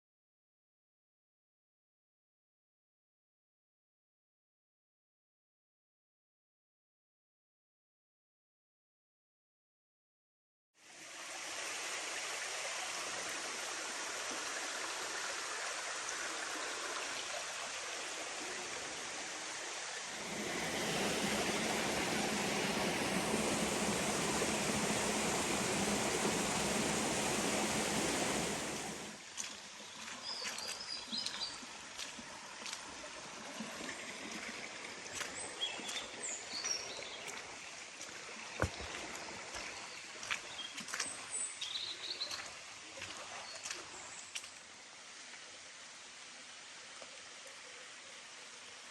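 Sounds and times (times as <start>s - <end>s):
water rushing in waterfall: 10.8s - 48.9s.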